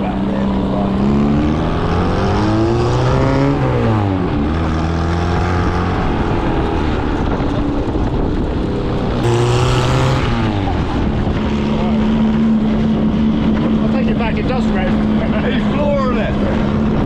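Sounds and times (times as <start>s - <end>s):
car engine revving: 0.1s - 7.2s, 9.0s - 13.5s.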